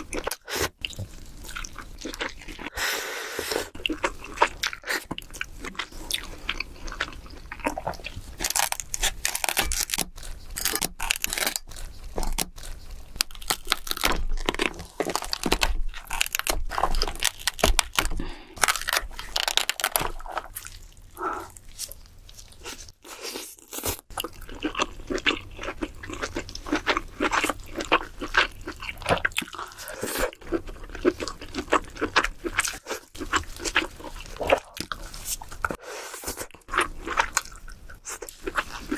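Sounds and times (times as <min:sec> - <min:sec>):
chewing and wet mouth sounds: 0:00.0 - 0:02.7, 0:03.4 - 0:38.9
crab shell crunching: 0:03.8 - 0:20.7.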